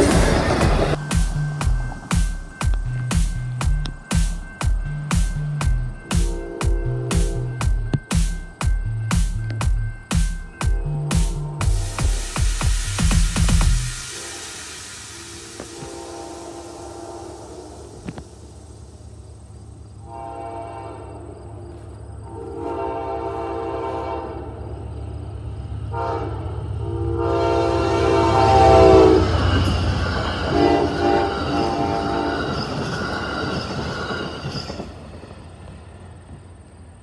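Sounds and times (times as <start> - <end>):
wheel-on-rail noise: 0.0 - 10.9, 29.2 - 37.0
diesel locomotive engine rumble: 0.0 - 37.0
locomotive horn blasts: 6.1 - 8.0, 13.9 - 18.2, 20.0 - 21.4, 22.2 - 24.6, 25.9 - 29.7, 30.5 - 32.4.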